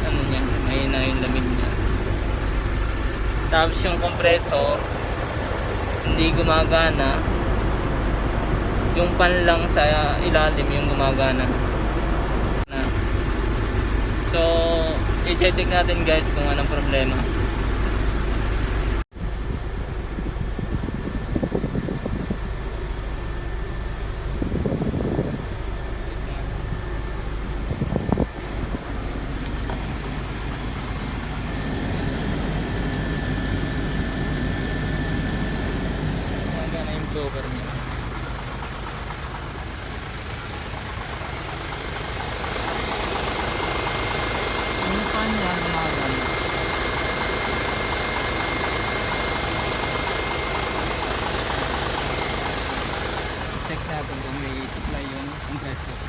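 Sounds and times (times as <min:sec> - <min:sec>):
truck engine idling: 0:00.0 - 0:56.0
faint high whine: 0:19.2 - 0:56.0.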